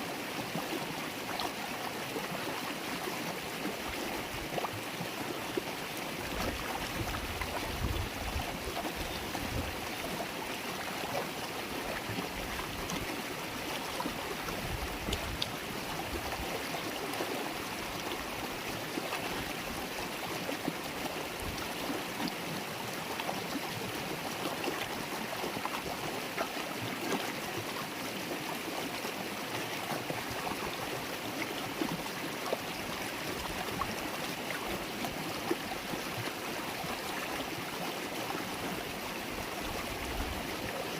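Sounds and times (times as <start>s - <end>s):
river water babbling: 0.0s - 40.9s.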